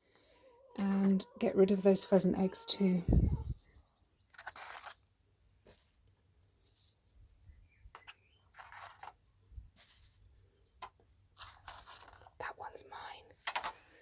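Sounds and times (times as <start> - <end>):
faint birds chirping: 0.0 - 14.0
soft rustling or scuffing: 5.6 - 7.5, 9.7 - 10.4.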